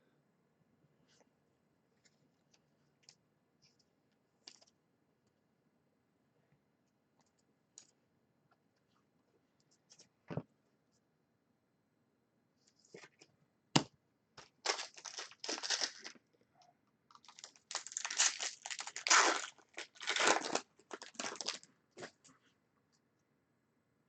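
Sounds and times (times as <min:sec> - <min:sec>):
wrappers tearing and crinkling: 0:14.6 - 0:16.2, 0:17.1 - 0:21.6.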